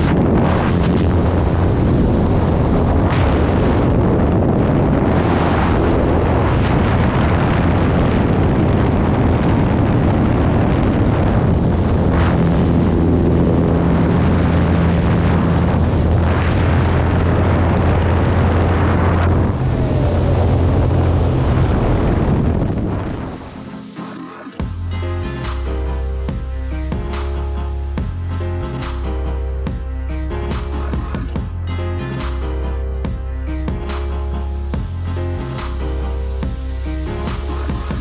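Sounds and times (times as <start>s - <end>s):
wind buffeting microphone: 0.0s - 23.7s
low drone: 0.0s - 38.0s.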